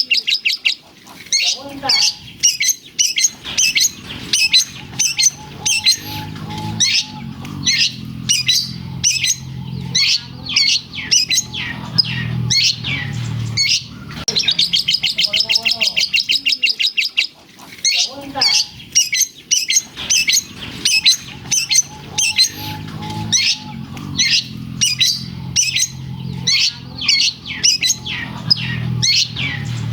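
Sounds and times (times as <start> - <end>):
bird singing sharp chirps: 1.4 - 17.1, 17.9 - 29.9
low hum: 3.3 - 16.3, 19.8 - 29.9.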